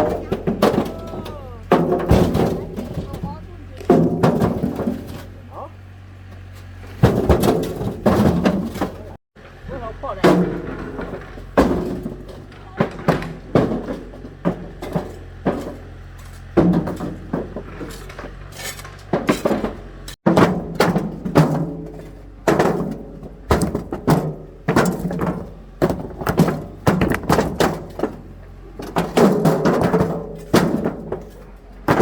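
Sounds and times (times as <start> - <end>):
stones clattering into metal trailer: 0.0 - 5.6, 6.2 - 32.0.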